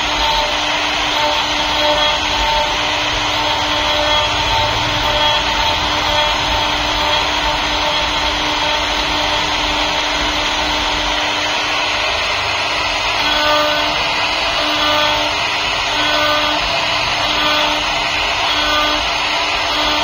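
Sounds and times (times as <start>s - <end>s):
cnc router spindle whine: 0.0s - 20.0s
router cutting wood: 0.0s - 20.0s.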